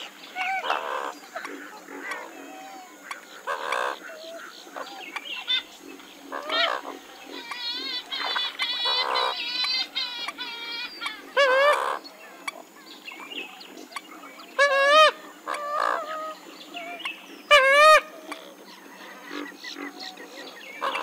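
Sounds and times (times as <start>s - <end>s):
loud honking bird calls: 14.6s - 18.1s.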